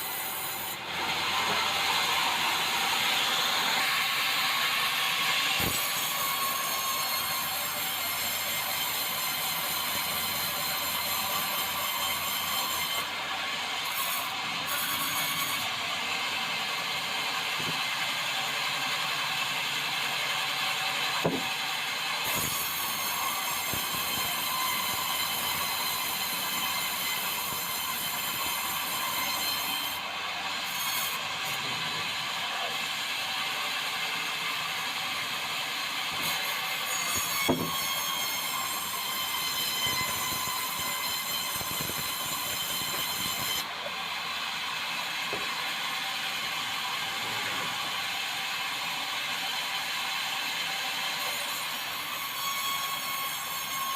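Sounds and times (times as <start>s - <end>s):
high whine of saw: 0.0s - 53.9s
sawmill running: 0.0s - 53.9s
sharp knocks: 21.2s - 21.5s, 37.4s - 37.8s.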